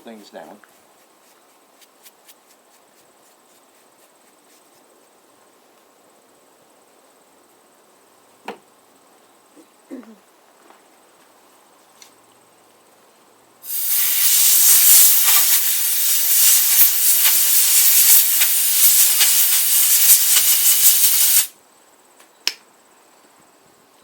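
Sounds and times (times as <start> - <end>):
compressed air hissing: 13.6 - 21.6.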